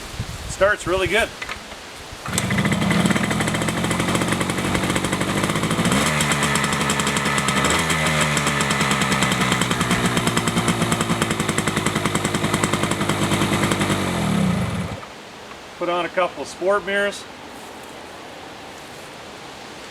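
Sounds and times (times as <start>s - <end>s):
engine throttle blips: 2.2s - 15.1s
two-stroke motorcycle engine idling: 2.2s - 15.1s.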